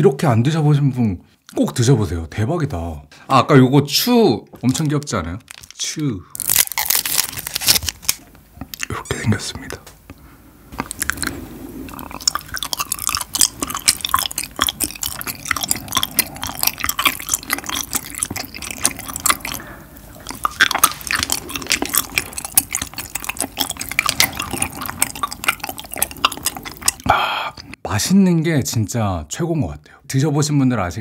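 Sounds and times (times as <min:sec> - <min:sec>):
chewing gummy jelly: 0:04.6 - 0:09.0, 0:10.7 - 0:27.8.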